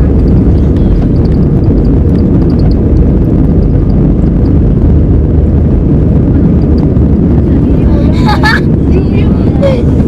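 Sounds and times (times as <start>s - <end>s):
faint ticks and rattles: 0.0s - 5.2s
jet engines roaring: 0.0s - 10.0s.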